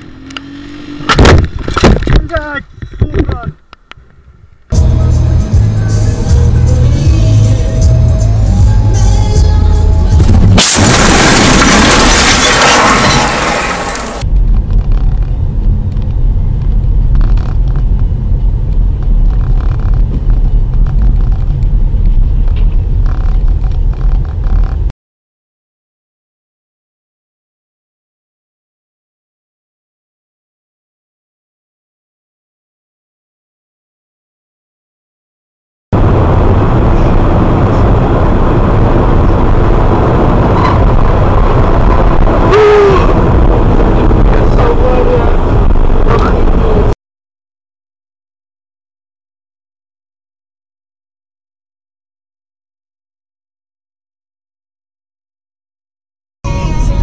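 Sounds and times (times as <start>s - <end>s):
car engine and tyre noise: 0.0s - 24.9s, 36.0s - 47.0s.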